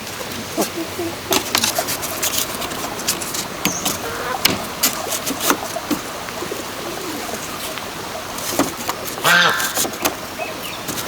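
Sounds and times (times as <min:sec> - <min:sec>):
steady background hiss: 0:00.0 - 0:11.0
sharp knocks and clicks: 0:02.8 - 0:06.0.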